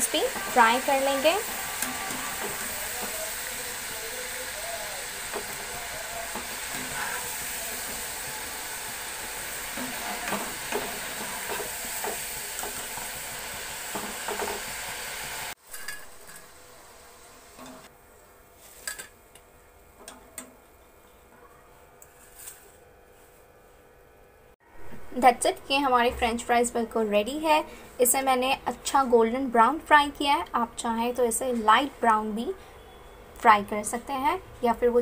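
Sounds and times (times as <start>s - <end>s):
fries sizzling in hot oil: 0.0s - 17.9s.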